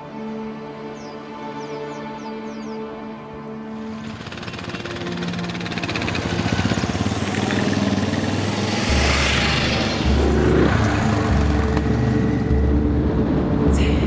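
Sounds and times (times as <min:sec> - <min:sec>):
motorcycle engine running: 0:03.8 - 0:13.2.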